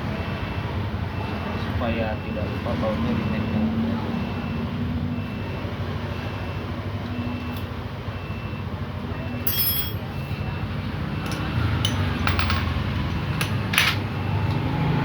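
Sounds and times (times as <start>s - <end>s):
metallic clink: 9.5s - 10.1s, 11.2s - 12.8s.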